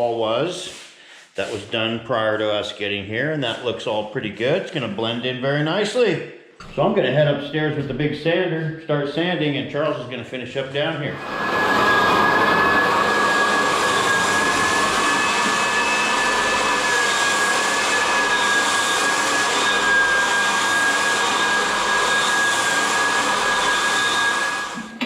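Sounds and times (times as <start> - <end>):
floor sanding machine whine: 0.5 - 1.8, 11.0 - 25.0.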